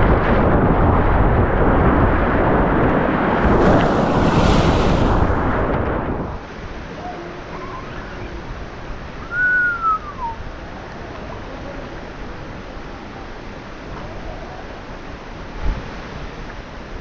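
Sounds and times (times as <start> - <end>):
river water rushing: 3.1 - 11.0
whistled call: 9.2 - 10.7.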